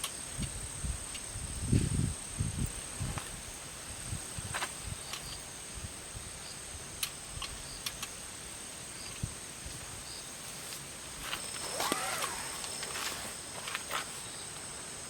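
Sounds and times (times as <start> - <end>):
sharp clicks: 7.0 - 8.2, 11.3 - 13.9.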